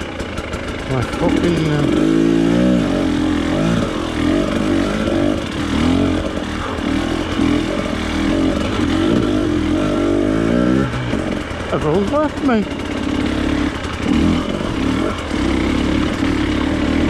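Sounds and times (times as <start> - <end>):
off-road motorcycle engine revving: 0.0 - 17.0.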